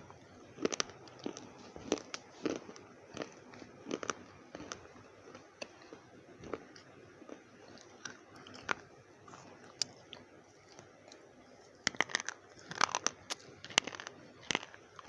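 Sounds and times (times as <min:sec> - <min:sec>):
slate pencils crunching: 0:11.9 - 0:15.0.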